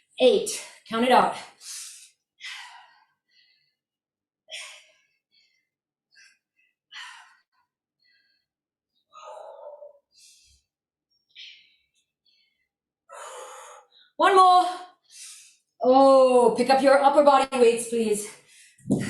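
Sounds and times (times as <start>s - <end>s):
woman breathing hard: 1.5s - 3.8s, 4.5s - 10.7s, 11.4s - 14.2s.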